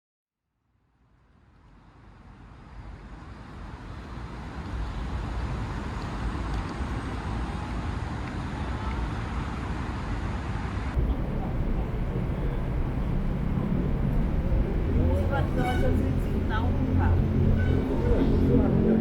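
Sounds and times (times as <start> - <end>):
road traffic rumble and hiss: 1.2 - 19.0.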